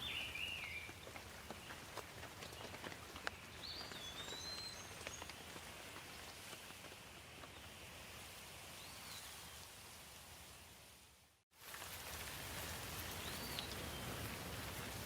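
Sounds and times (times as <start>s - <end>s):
bird chirping: 0.0s - 1.8s, 2.5s - 5.3s
light steady rain: 0.0s - 15.0s.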